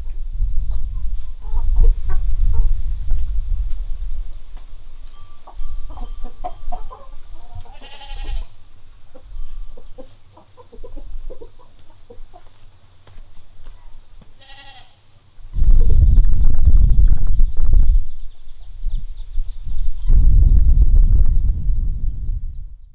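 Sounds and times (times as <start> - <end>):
loud low rumble: 0.0 - 5.9, 15.6 - 18.3, 19.7 - 22.9
chickens clucking: 0.7 - 16.0.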